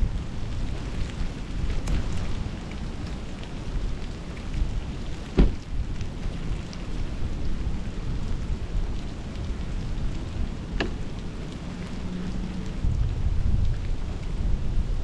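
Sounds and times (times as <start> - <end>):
blizzard wind buffeting: 0.0 - 15.0
sharp thump: 5.4 - 5.6.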